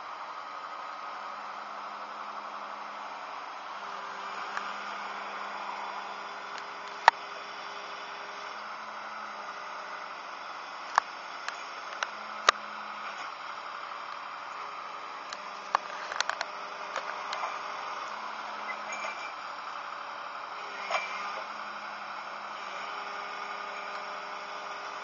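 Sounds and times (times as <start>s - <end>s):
diesel engine low hum: 0.0s - 25.0s.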